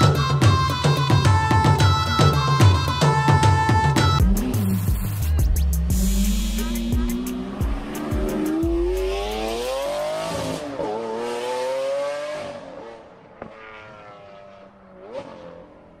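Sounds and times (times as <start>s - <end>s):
car engine revving: 4.2s - 16.0s.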